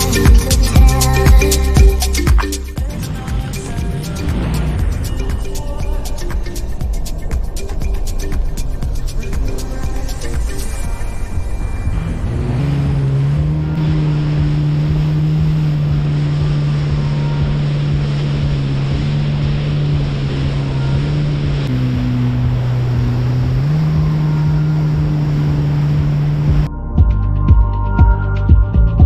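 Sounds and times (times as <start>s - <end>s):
jet ski engine running: 0.0s - 26.7s
water rushing: 0.0s - 26.7s
wind: 0.0s - 26.7s.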